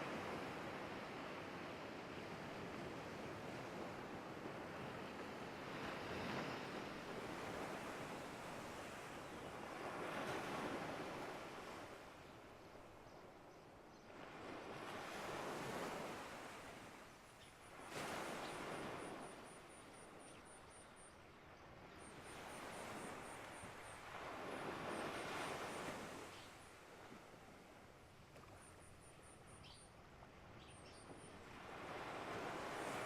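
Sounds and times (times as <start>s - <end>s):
waves washing in: 31.4s - 33.0s.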